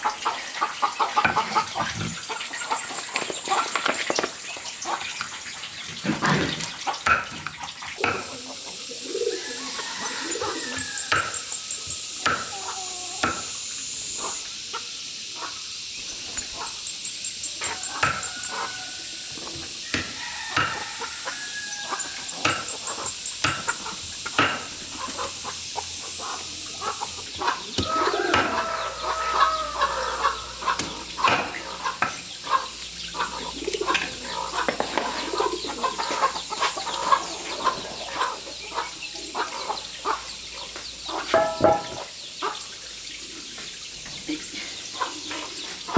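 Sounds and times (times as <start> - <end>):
chickens clucking: 0.0 - 45.9
high-pitched hiss: 8.0 - 43.9.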